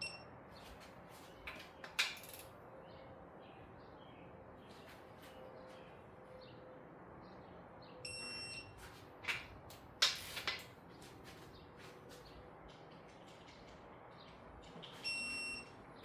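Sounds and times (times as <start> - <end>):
wrench short beep: 0.0 - 0.2, 8.1 - 8.7, 15.1 - 15.7
wrench clicks and metallic knocks: 1.5 - 2.5, 9.3 - 10.7.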